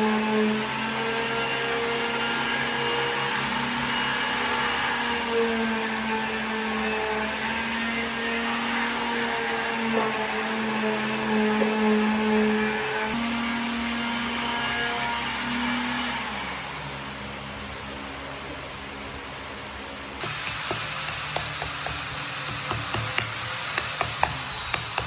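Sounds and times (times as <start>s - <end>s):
power tool motor whining: 20.2s - 25.0s.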